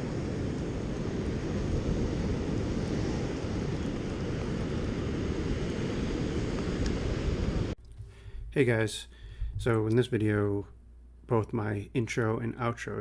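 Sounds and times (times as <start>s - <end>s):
ocean surf: 0.0s - 7.8s
wind buffeting microphone: 0.0s - 7.8s.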